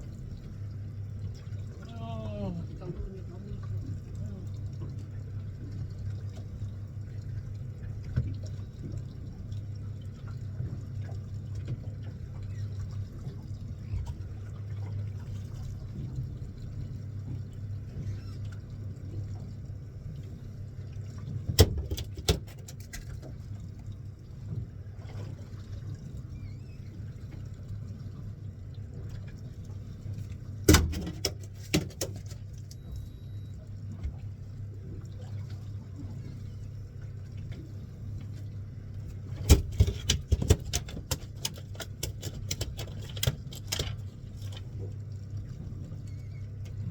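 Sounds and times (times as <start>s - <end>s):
boat engine humming: 0.0s - 46.9s
clattering knocks on boat: 21.4s - 23.0s, 30.6s - 33.0s, 39.3s - 44.1s.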